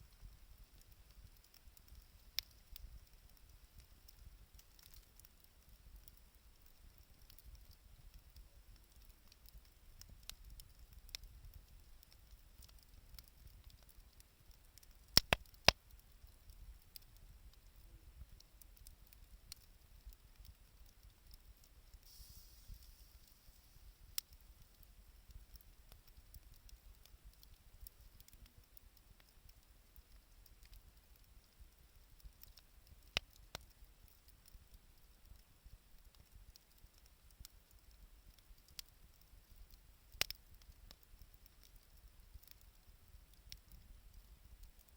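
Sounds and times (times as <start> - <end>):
campfire crackling: 0.0 - 44.9
sharp pops of fire: 15.1 - 15.9
brief hiss: 22.0 - 24.1.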